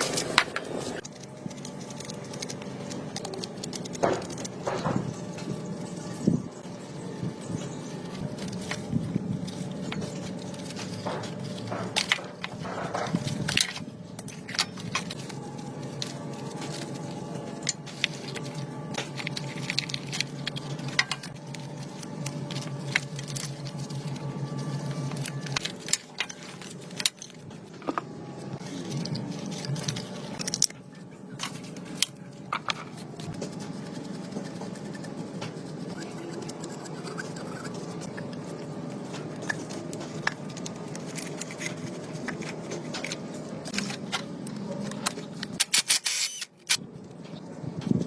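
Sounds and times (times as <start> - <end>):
low hum: 0.0 - 48.0
metal tools clicking and scraping: 8.3 - 28.0, 35.9 - 46.8.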